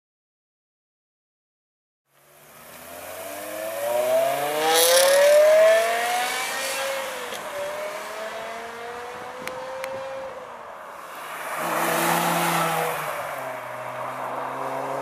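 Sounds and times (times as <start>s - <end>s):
car engine accelerating: 2.2s - 10.4s.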